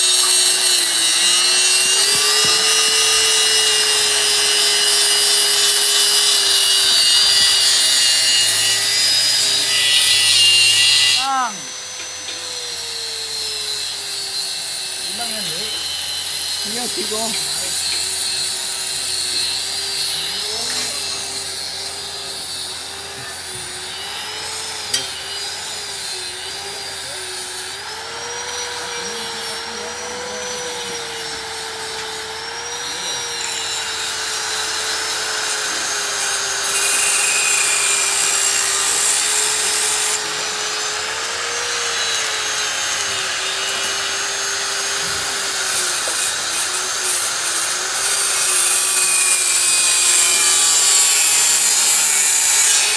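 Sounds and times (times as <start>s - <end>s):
rasping hiss: 0.0s - 11.2s, 28.5s - 52.9s
electric power tool on metal: 0.0s - 52.9s.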